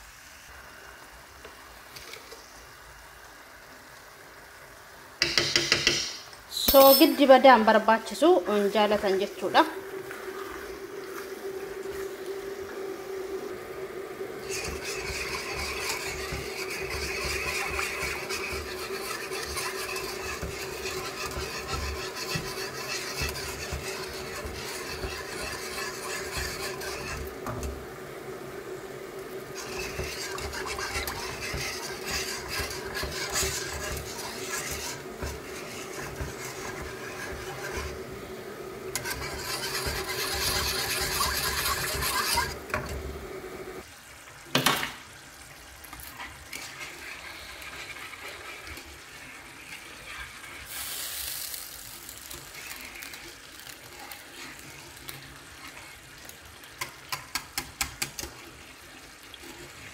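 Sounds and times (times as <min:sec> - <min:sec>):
steady hum: 0:06.7 - 0:43.8.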